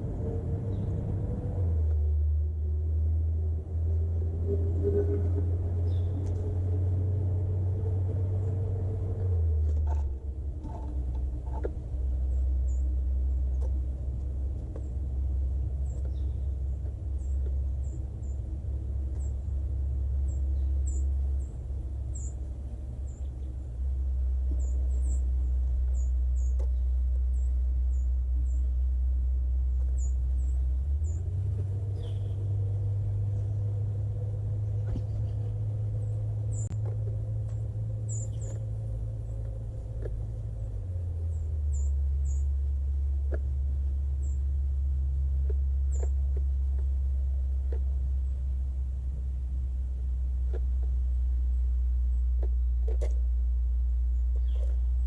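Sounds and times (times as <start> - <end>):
steady low rumble: 0.0 - 55.0
small birds chirping: 0.2 - 1.2, 4.8 - 55.0.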